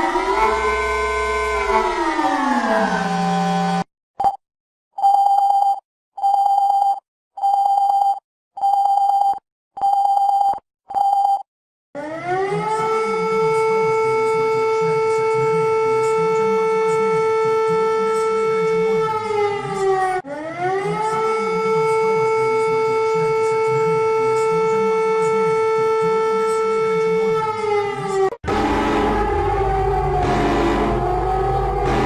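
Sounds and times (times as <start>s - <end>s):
siren wailing: 0.0s - 3.9s, 12.0s - 32.0s.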